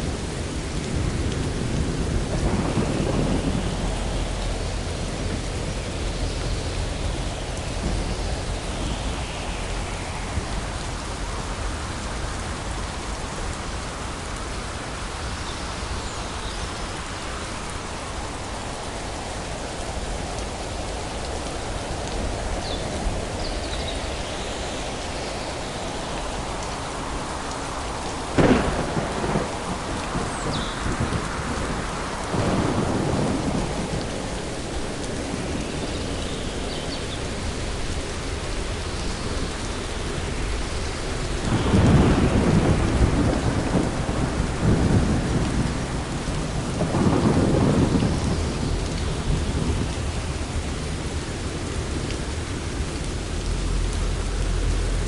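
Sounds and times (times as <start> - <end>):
steady rainfall: 0.0 - 55.0
rolling thunder: 0.1 - 12.4, 27.9 - 36.6, 40.2 - 54.2
sharp thunderclap: 1.9 - 5.9, 28.4 - 34.0, 41.5 - 50.9.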